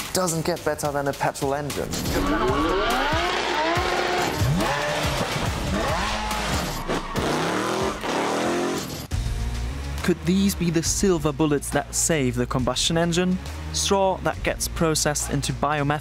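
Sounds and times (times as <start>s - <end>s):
car engine revving hard: 2.1s - 9.1s.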